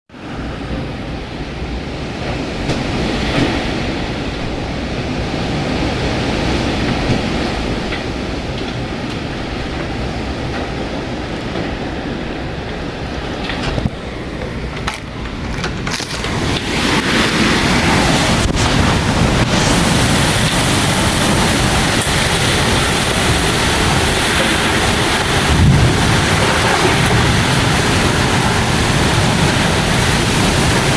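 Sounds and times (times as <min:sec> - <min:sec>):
strong wind rushing: 0:00.1 - 0:30.9
wind buffeting microphone: 0:00.1 - 0:30.9.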